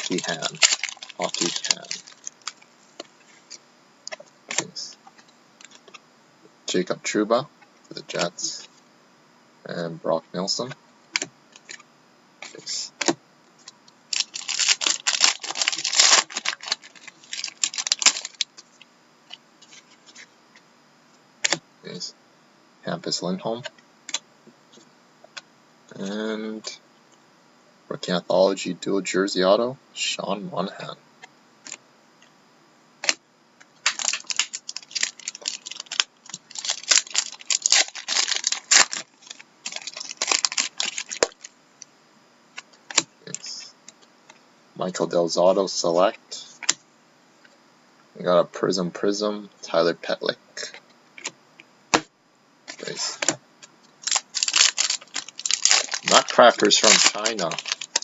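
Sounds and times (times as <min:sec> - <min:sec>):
card packaging crinkling and clicking: 0:00.0 - 0:06.0, 0:12.4 - 0:18.8, 0:33.8 - 0:41.5, 0:42.6 - 0:43.1, 0:54.0 - 0:58.0.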